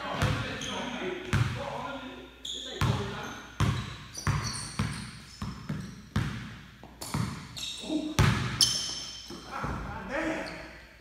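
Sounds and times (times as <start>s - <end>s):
sneaker squeaks: 0.2s - 1.0s, 2.4s - 10.8s
basketball bouncing on hardwood floor: 3.6s - 7.5s, 8.2s - 9.9s.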